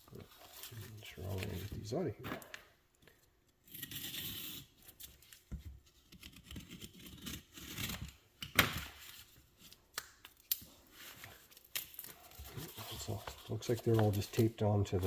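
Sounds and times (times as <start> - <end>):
cardboard rustling and scraping: 12.2 - 15.0.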